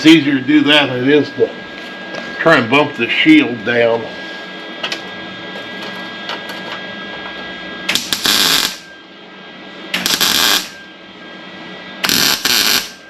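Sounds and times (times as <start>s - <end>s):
steady welder hum: 0.0s - 13.0s
welding arc bursts: 7.9s - 8.9s, 9.9s - 10.8s, 12.0s - 13.0s.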